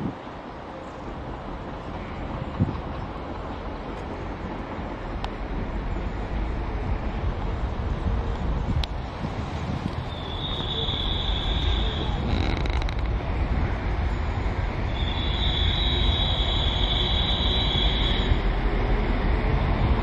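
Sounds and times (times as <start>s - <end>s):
train low rumble: 0.0s - 20.0s
high-pitched squeal: 10.0s - 13.1s, 14.9s - 18.5s.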